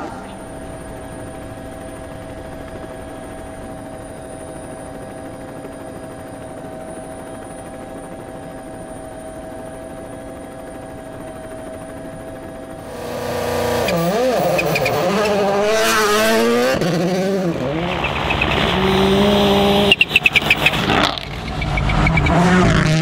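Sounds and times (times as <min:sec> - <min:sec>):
steady engine drone: 0:00.0 - 0:23.0.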